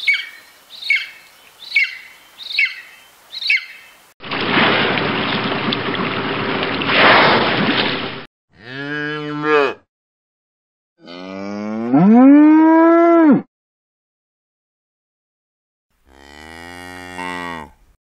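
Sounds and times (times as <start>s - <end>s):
water rushing and splashing: 1.4s - 8.3s
cow mooing: 8.5s - 9.8s, 11.0s - 13.5s, 16.0s - 17.8s.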